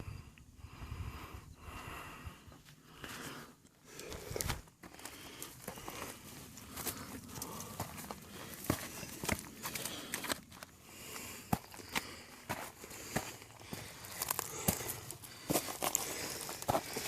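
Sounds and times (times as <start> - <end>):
heavy breathing: 0.0 - 17.0
footsteps: 4.0 - 17.0.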